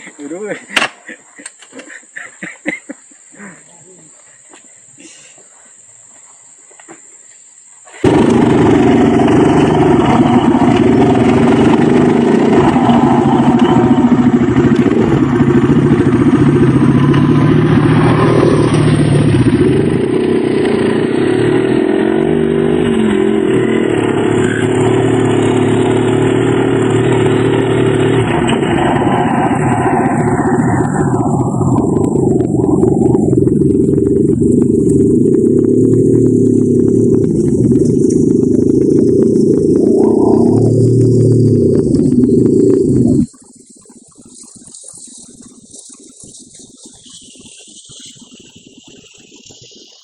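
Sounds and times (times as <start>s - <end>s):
dirt bike engine running: 8.0s - 43.4s.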